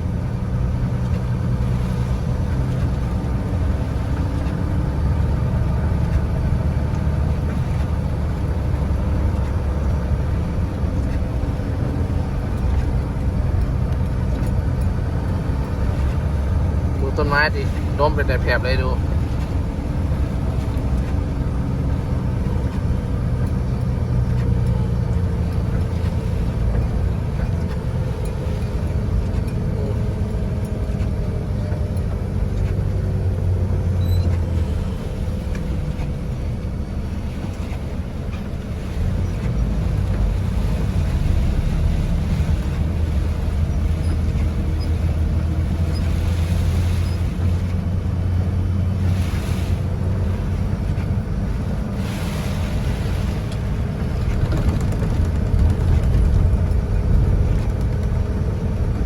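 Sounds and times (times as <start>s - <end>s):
storm wind buffeting microphone: 47.1s - 59.0s.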